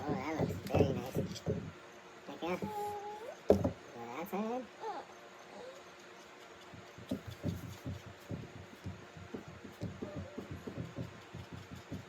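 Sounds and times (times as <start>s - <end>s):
soft low thumps: 0.0s - 1.8s, 6.7s - 12.0s.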